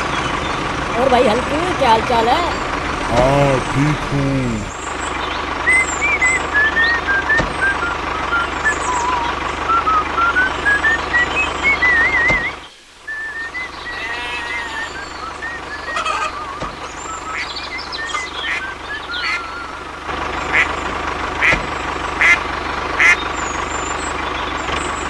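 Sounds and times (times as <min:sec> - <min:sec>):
short warbling whistles: 0:06.1 - 0:18.2.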